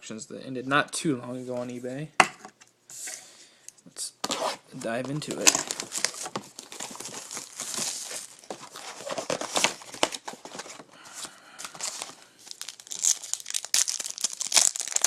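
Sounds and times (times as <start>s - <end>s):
shrink wrap and cardboard tearing: 5.3s - 10.8s, 11.7s - 15.0s.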